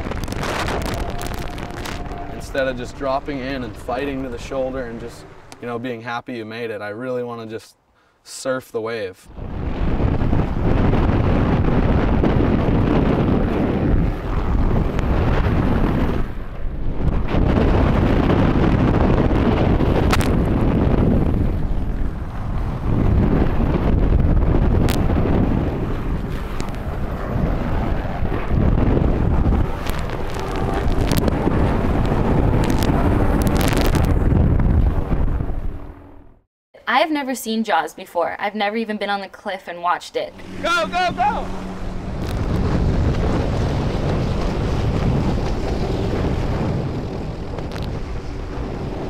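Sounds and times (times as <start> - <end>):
wind buffeting microphone: 0.0 - 5.8, 9.3 - 36.4, 40.3 - 49.0
water and surf rushing: 0.0 - 6.0, 40.3 - 49.0.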